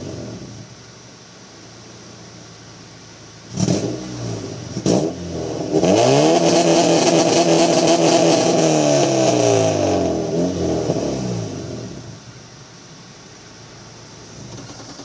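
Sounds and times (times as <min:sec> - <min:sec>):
car engine revving hard: 0:03.4 - 0:12.3, 0:14.3 - 0:15.0.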